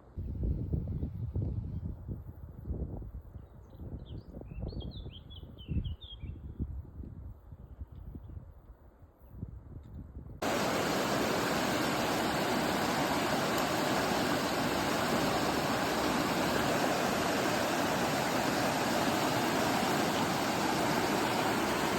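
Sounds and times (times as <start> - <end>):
waterfall rushing: 10.4 - 21.9.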